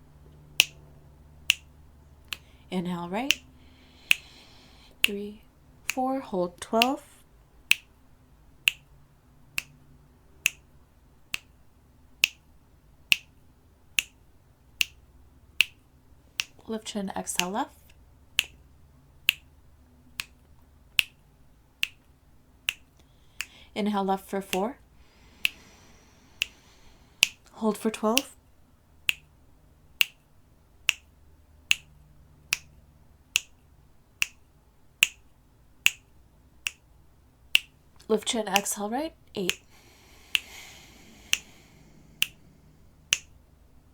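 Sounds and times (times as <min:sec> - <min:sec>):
sharp single clicks: 0:00.6 - 0:00.8, 0:25.3 - 0:27.5, 0:33.4 - 0:33.6, 0:35.0 - 0:36.9, 0:39.4 - 0:43.4
sharp ticking clicks: 0:01.4 - 0:07.1, 0:24.4 - 0:27.5, 0:29.0 - 0:33.6, 0:35.0 - 0:36.9, 0:37.5 - 0:43.6.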